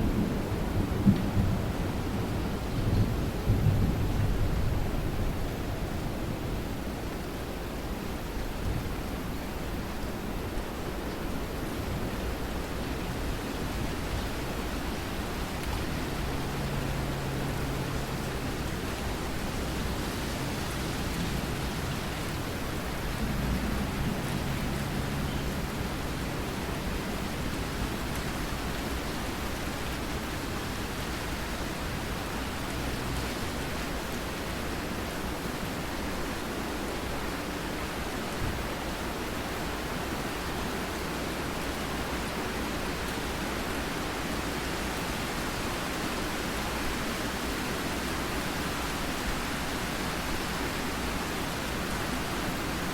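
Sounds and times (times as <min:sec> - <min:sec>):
steady rain: 0:00.0 - 0:52.9.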